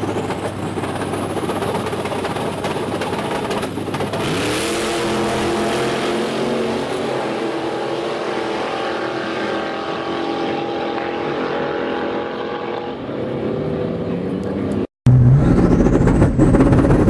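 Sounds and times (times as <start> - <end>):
drag racing car engine revving: 3.4 - 17.0.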